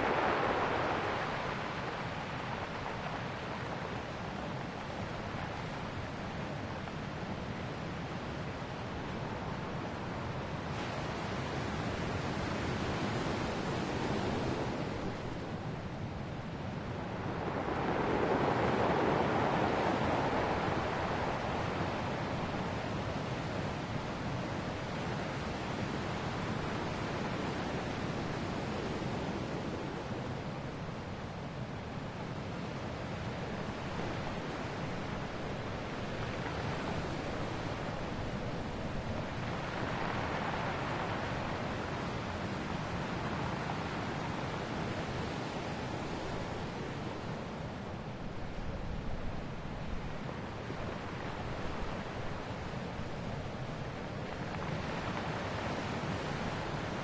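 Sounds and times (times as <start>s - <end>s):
ocean surf washing on shore: 0.0s - 57.0s.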